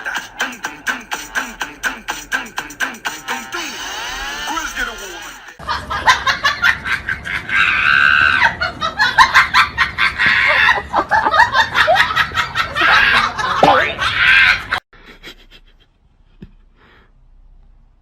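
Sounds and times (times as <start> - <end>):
people laughing and shrieking: 5.5 - 15.2.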